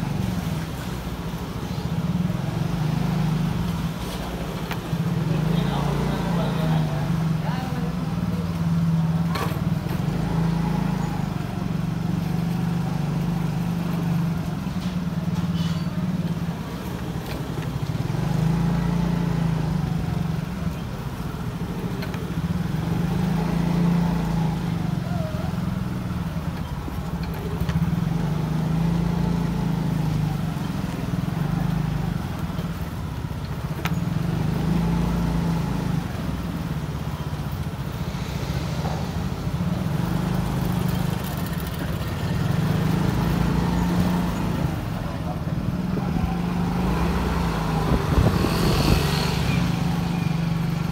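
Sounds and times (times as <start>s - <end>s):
road noise: 0.0s - 50.9s
motorcycle engine running: 38.7s - 50.9s.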